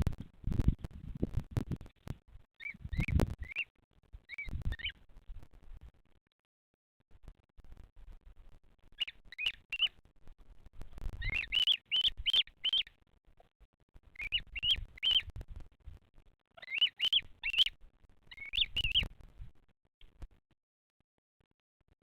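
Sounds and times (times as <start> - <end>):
bird chick cheeping: 2.6 - 3.7, 4.3 - 5.0, 9.0 - 10.0, 11.2 - 12.9, 14.2 - 15.4, 16.6 - 19.1.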